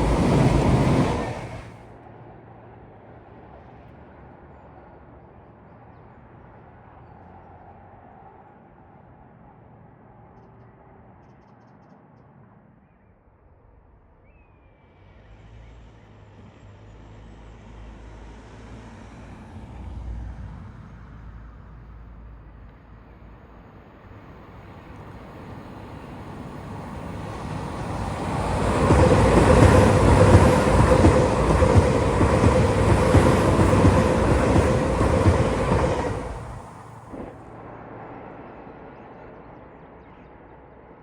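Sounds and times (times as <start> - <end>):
train passing: 0.0 - 2.4, 16.2 - 41.0.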